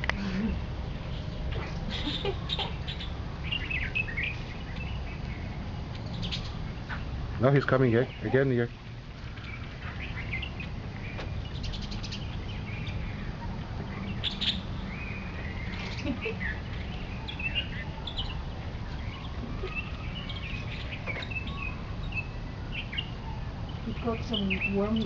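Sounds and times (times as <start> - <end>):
birds chirping and calling: 0.0 - 25.0
steady low rumble: 0.0 - 25.0.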